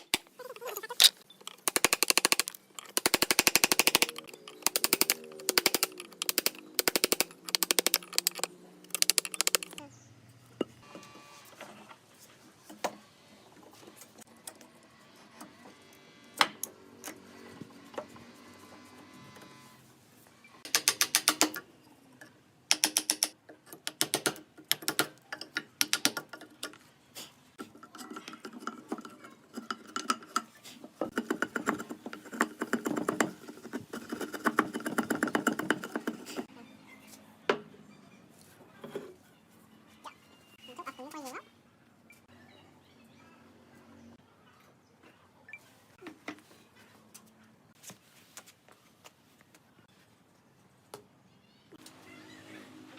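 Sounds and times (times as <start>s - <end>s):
rapid mechanical clicking and rattling: 1.4s - 9.8s, 28.0s - 36.5s.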